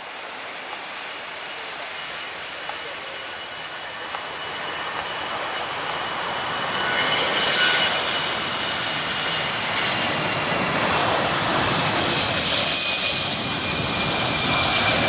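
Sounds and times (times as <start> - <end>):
aircraft engines roaring: 0.0 - 15.0
high engine whine: 2.4 - 15.0.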